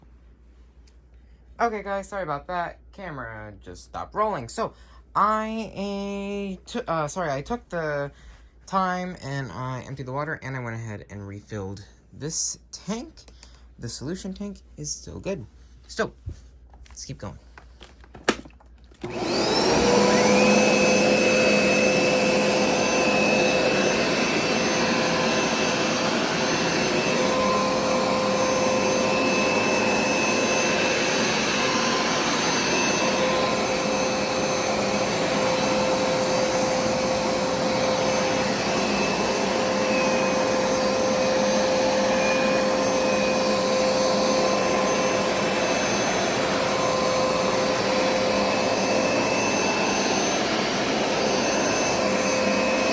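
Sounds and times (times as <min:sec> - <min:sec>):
carpet cleaner motor whine: 0:18.1 - 0:52.9
suction rush: 0:19.1 - 0:52.9.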